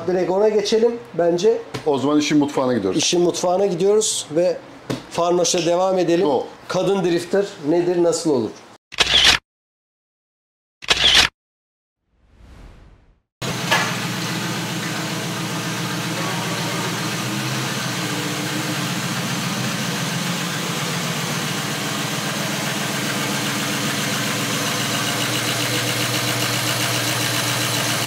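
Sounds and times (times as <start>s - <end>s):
car engine idling: 13.5s - 28.0s.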